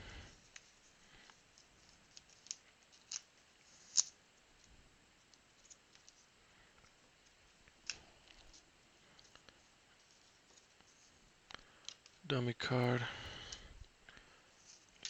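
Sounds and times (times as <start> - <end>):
trading cards clicking and snapping: 1.9 - 4.2.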